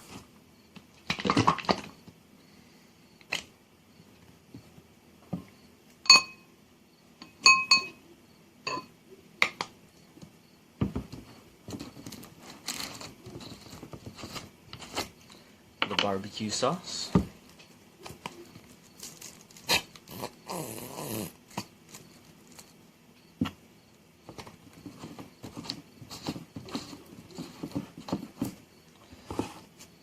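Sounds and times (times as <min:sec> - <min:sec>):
rustling and scraping: 0:00.0 - 0:02.2, 0:10.2 - 0:20.4, 0:21.3 - 0:30.0.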